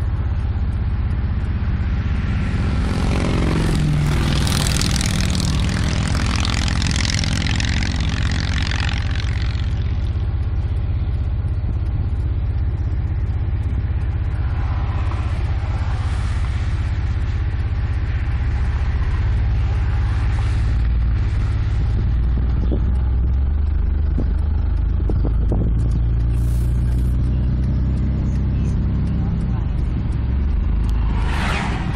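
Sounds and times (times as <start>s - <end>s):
car engine hum from inside: 0.0s - 31.9s
passing vehicle hiss: 14.4s - 17.4s, 30.9s - 31.9s.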